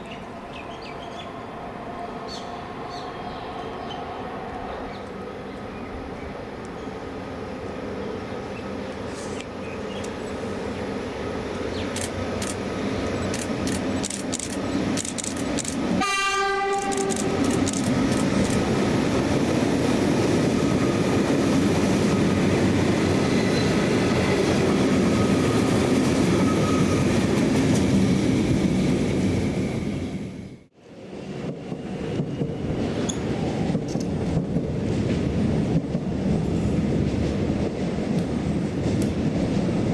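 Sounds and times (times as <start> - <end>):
train rumbling on rails: 0.0 - 39.9
train horn: 16.0 - 17.4.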